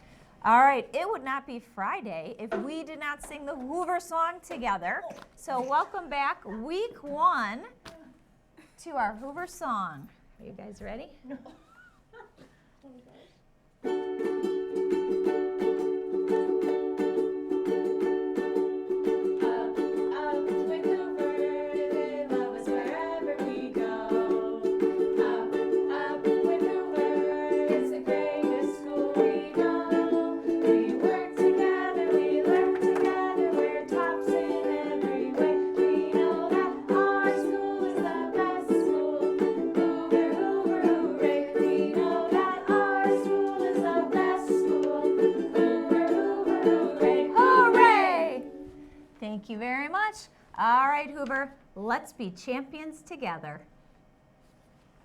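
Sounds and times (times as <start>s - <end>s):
strummed string instrument: 13.8s - 49.1s
people singing: 19.0s - 49.0s.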